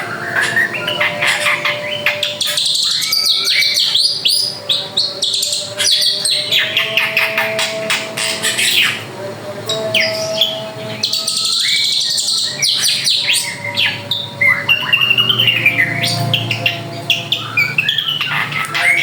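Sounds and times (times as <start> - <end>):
bird singing whistles: 0.1 - 4.6.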